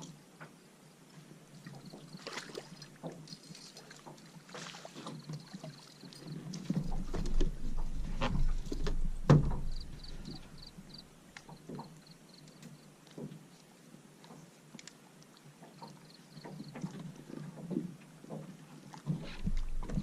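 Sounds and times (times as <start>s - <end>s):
water movement: 1.5s - 20.0s
boat knocking and bumping: 6.6s - 11.9s, 19.1s - 20.0s.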